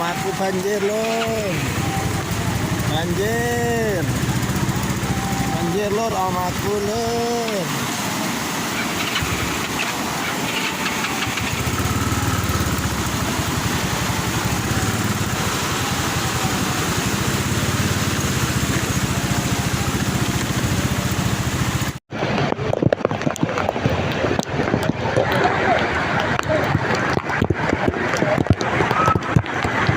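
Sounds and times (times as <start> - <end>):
vehicle engine running: 0.0 - 22.6
rushing noise: 0.0 - 29.9.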